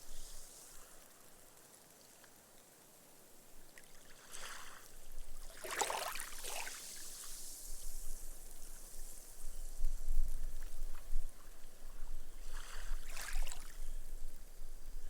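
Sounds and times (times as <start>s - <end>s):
foam fizzing into sand: 0.0s - 1.2s, 5.6s - 9.8s
waves washing onto sandy beach: 5.5s - 9.4s.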